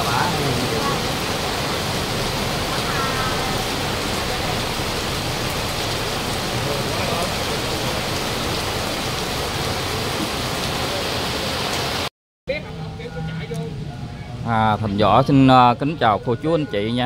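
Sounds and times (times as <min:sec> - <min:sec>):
heavy rain on pavement: 0:00.0 - 0:12.1.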